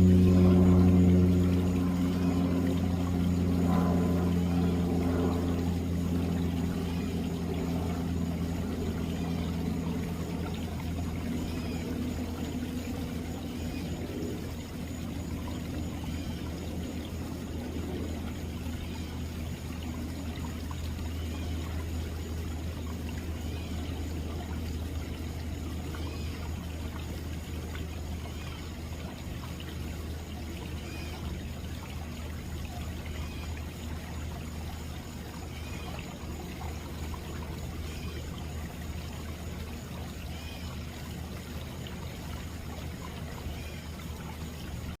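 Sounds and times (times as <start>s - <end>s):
low steady rumble: 0.0s - 45.0s
pond waterfall splashing: 0.0s - 45.0s.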